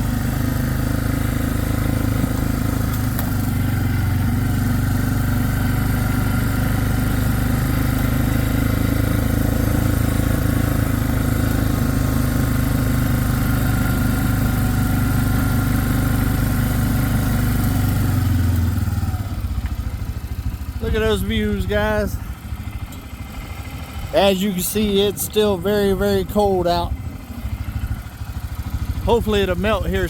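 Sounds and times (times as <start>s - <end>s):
small vehicle engine running: 0.0s - 30.0s.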